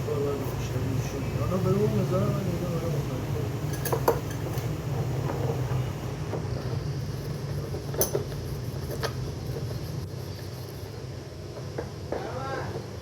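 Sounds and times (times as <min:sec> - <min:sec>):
steady low hum: 0:00.0 - 0:13.0
metal tools clinking: 0:03.7 - 0:04.6.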